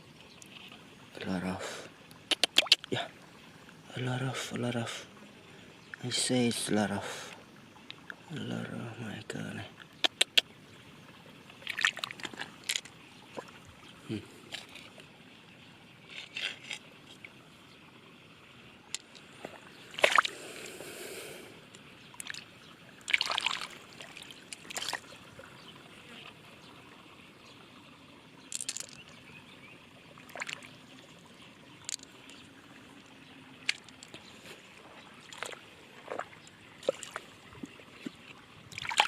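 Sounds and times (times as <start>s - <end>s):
splashing in shallow water: 1.6s - 3.2s, 11.6s - 15.0s, 19.0s - 20.8s, 22.1s - 25.8s, 30.2s - 31.2s, 31.8s - 39.0s
sharp clicks: 2.3s - 2.9s, 10.0s - 10.4s.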